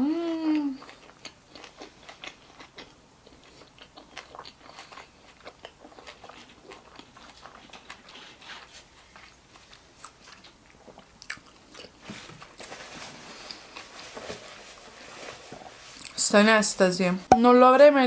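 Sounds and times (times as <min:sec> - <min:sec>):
person humming mmm: 0:00.0 - 0:00.9
close chewing with wet clicks: 0:00.5 - 0:08.2, 0:09.1 - 0:12.0.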